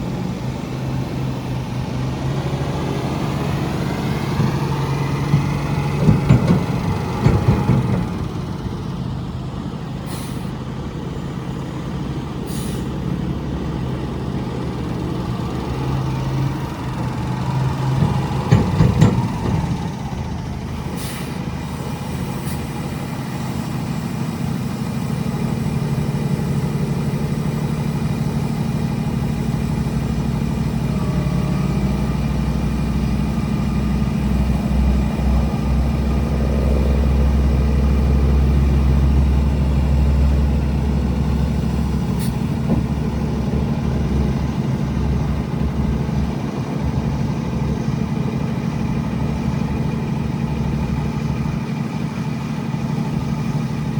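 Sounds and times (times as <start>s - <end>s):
diesel truck engine idling: 0.0s - 53.9s
deep low rumble: 34.1s - 47.7s.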